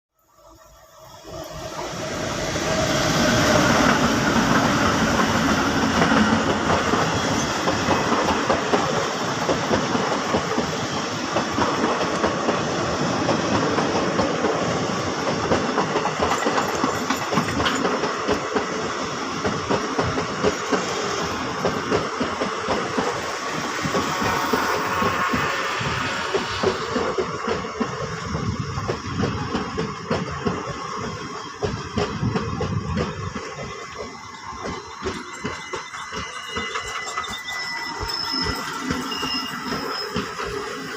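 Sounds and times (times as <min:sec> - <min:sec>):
train rolling rumble: 0:01.0 - 0:40.9
wheels clicking over rail joints: 0:03.4 - 0:24.6.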